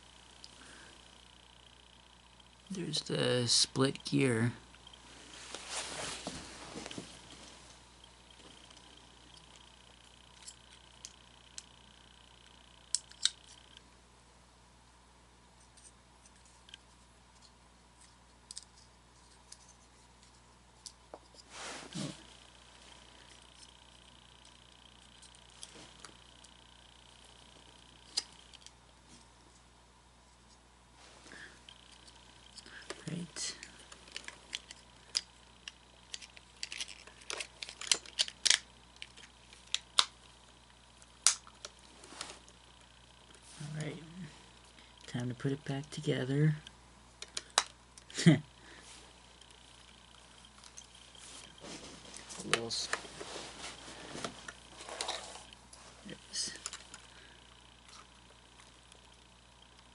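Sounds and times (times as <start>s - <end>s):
short rustle: 5.1s - 7.7s
plastic parts clicking: 34.1s - 40.1s, 47.2s - 48.1s.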